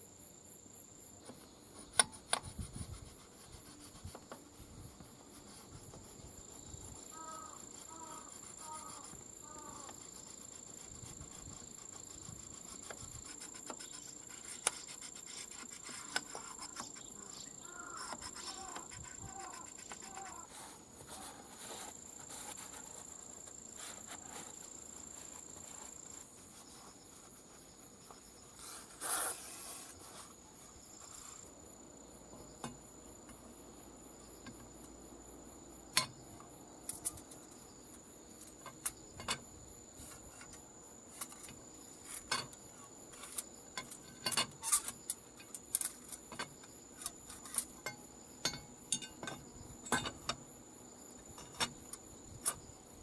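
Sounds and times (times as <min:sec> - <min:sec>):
short rubbing rush: 0:28.5 - 0:31.5
metal clinking on metal: 0:47.8 - 0:50.4.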